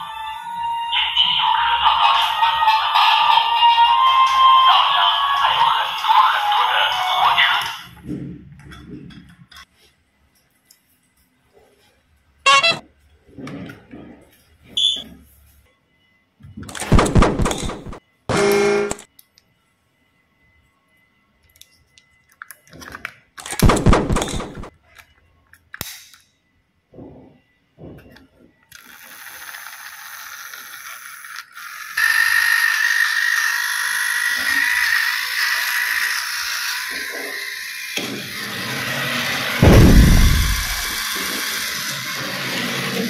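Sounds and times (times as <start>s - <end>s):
toy train motor whirring: 28.7s - 39.6s, 41.0s - 43.0s
high whine: 39.6s - 41.0s.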